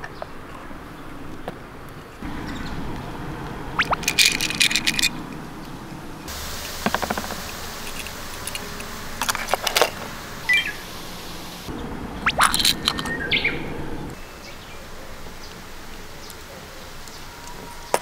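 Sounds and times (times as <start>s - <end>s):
bird chirps: 2.2s - 8.8s, 10.0s - 18.0s
toy cars clattering on plastic: 3.9s - 5.2s, 6.8s - 10.1s.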